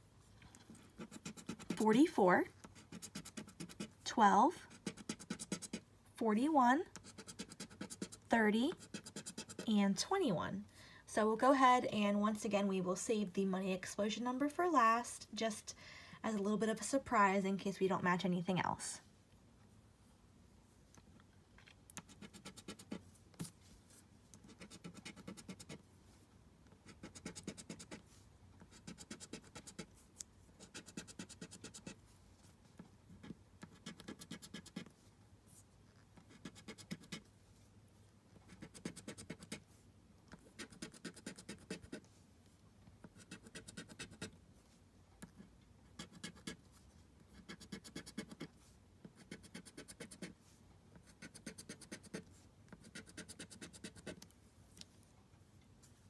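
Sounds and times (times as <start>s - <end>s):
lottery ticket being scratched: 1.0s - 2.0s, 2.7s - 4.0s, 4.8s - 5.8s, 7.0s - 9.7s, 30.6s - 32.0s, 33.2s - 34.8s, 38.5s - 39.6s.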